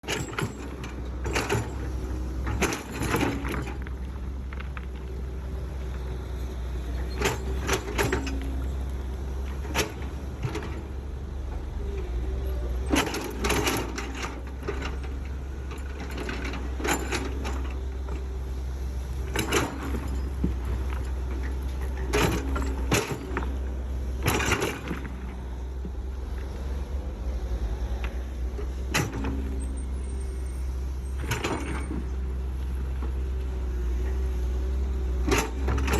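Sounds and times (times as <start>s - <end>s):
excavator bucket clanking: 0.0s - 4.0s, 7.0s - 8.8s, 9.4s - 11.6s, 12.8s - 18.4s, 19.2s - 25.9s, 28.6s - 29.8s, 31.0s - 32.3s, 35.2s - 35.9s
excavator engine rumbling: 0.0s - 35.9s.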